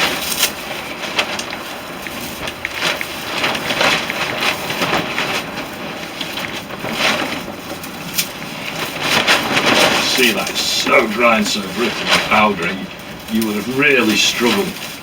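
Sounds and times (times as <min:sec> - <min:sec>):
dry twigs rustling and crackling: 0:00.0 - 0:15.0.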